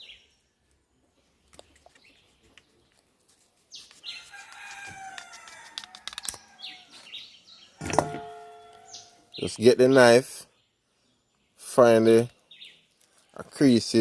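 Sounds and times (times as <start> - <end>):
rooster crowing: 4.3 - 6.9.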